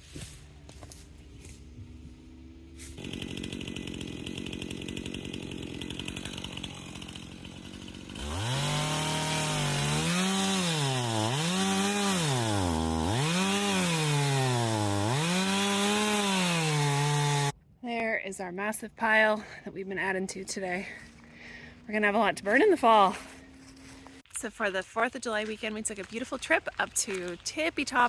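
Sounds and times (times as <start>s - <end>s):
chainsaw revving and cutting wood: 0.1s - 17.6s.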